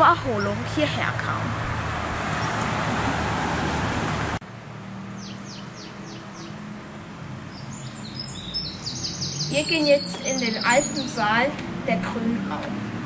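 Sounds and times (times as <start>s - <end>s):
small bird chirping: 5.2s - 6.6s, 7.5s - 11.4s.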